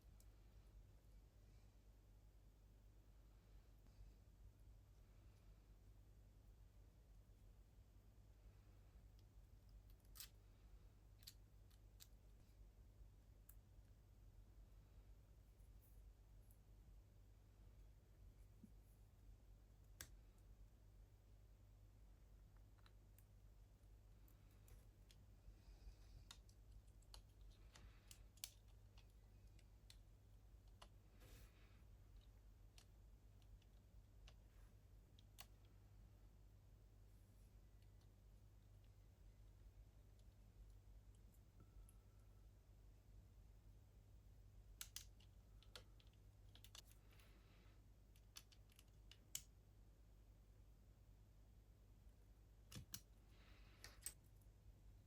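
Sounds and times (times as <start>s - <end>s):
low steady hum: 0.0s - 55.0s
plastic model parts clicking: 26.2s - 30.0s, 44.7s - 47.0s, 48.1s - 49.5s
soft rustle: 30.8s - 32.8s.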